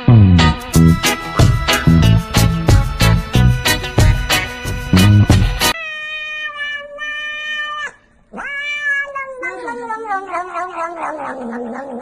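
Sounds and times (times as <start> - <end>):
music track: 0.0 - 5.8
cat yowling: 5.7 - 12.0.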